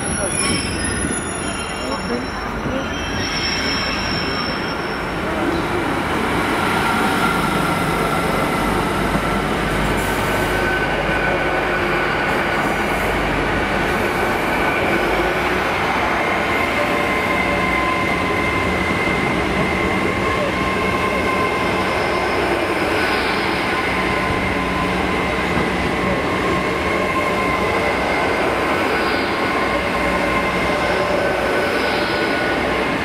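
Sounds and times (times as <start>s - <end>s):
high-pitched wheel squeal: 0.0s - 5.8s
train rolling past: 0.0s - 33.0s.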